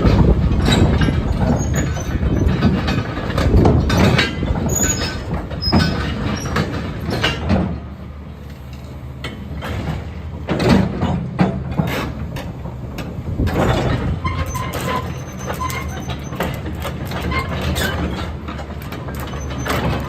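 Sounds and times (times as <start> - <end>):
metal clanks and knocks: 0.0 - 7.8, 9.2 - 20.0
excavator diesel engine droning: 0.0 - 20.0
high metal squeals: 14.2 - 16.4.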